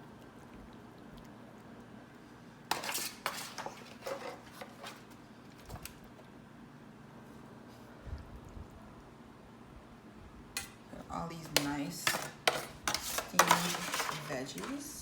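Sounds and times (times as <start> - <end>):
spatula scraping a dish: 2.7 - 5.1, 11.5 - 15.0.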